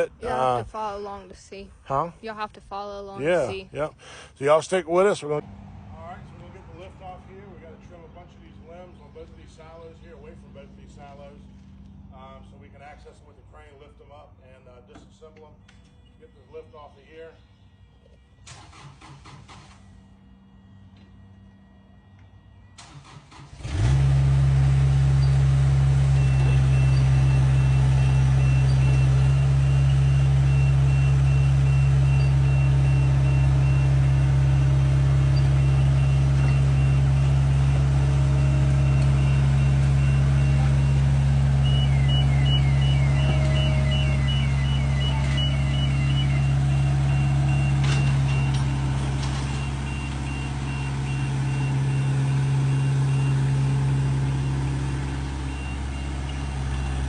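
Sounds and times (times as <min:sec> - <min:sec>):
lift engine running: 0:03.1 - 0:14.0, 0:15.6 - 0:57.0
fast chirping alarm: 0:25.1 - 0:57.0
motion alarm beeping: 0:25.1 - 0:57.0.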